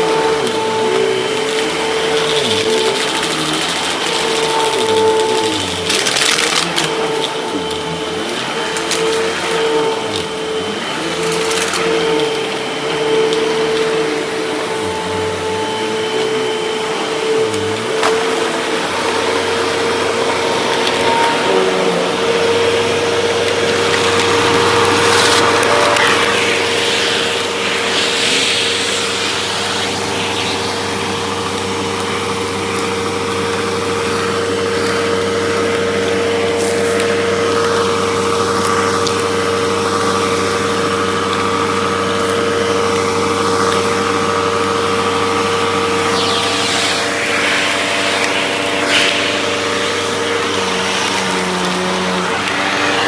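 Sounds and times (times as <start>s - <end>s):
vacuum cleaner motor hum: 0.0s - 53.0s
higher tone: 12.0s - 32.1s, 45.1s - 53.0s.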